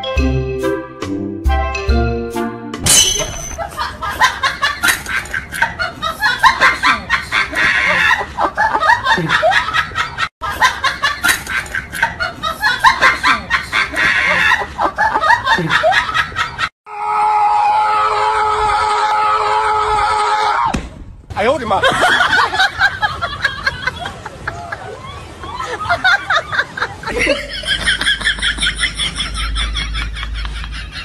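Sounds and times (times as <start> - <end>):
rapid snickering laughter: 25.6 - 31.0.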